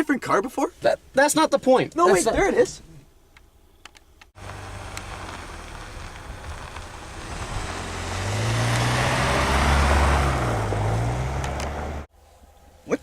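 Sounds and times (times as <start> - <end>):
road noise: 3.5 - 12.9
car engine hum: 4.4 - 12.1.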